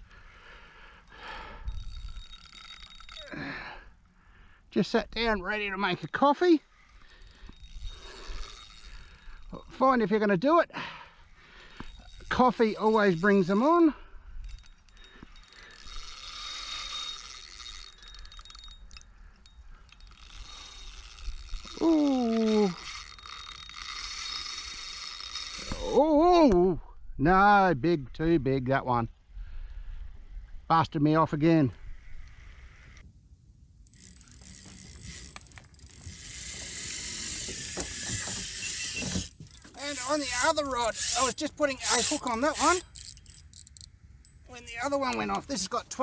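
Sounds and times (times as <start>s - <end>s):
fishing reel clicker buzzing: 1.7s - 3.4s, 6.8s - 9.6s, 14.8s - 18.9s, 19.9s - 25.9s, 31.7s - 46.0s.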